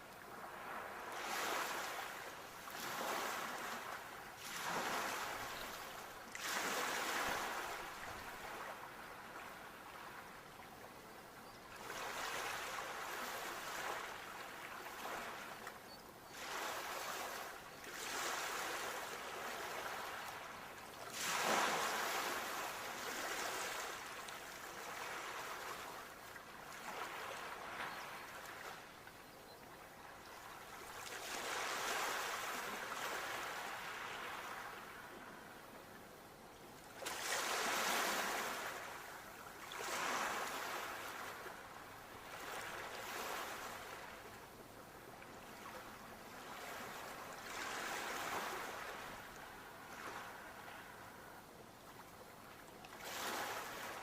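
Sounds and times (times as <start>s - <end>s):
sea waves breaking on shore: 0.2s - 10.4s, 16.3s - 28.9s, 30.4s - 35.4s, 37.0s - 44.4s, 45.2s - 52.1s, 52.9s - 54.0s.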